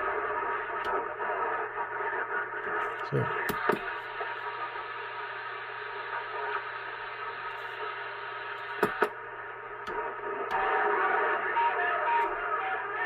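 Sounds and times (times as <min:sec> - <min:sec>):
radio static hiss: 0:00.0 - 0:13.0
sharp clicks: 0:08.6 - 0:09.2, 0:09.8 - 0:10.6.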